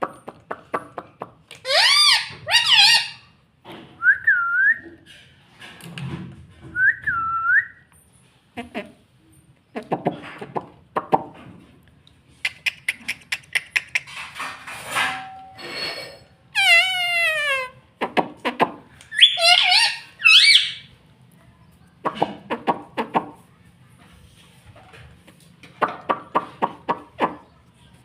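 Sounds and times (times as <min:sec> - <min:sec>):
loud parrot calls: 0:01.6 - 0:03.2, 0:19.1 - 0:20.9
parrot chattering: 0:01.6 - 0:03.2, 0:12.3 - 0:14.3, 0:16.6 - 0:20.9
parrot whistling: 0:01.7 - 0:03.2, 0:19.1 - 0:20.9
parrot clicking: 0:12.4 - 0:14.1.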